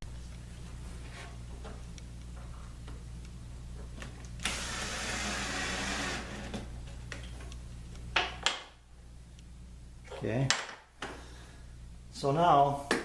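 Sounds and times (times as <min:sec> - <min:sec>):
power drill running: 0:04.4 - 0:06.6.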